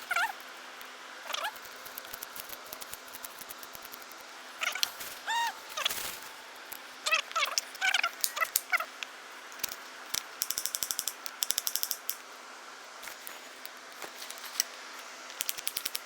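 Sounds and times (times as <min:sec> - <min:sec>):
short pitched animal calls: 0:01.3 - 0:01.6, 0:04.6 - 0:06.0.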